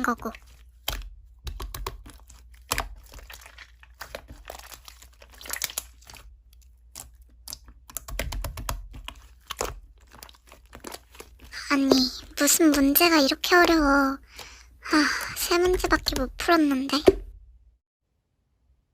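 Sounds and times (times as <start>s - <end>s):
slime clicking and popping: 0.8s - 11.2s.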